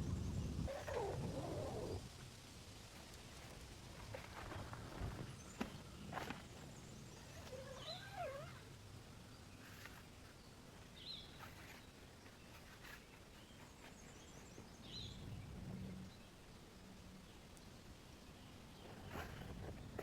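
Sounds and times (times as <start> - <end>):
wavering low animal call: 0.6 - 2.1, 7.3 - 8.8.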